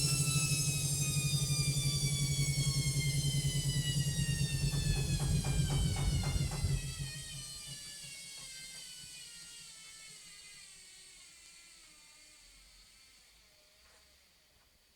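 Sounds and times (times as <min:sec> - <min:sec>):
washing machine drum coasting to stop: 0:00.0 - 0:07.8.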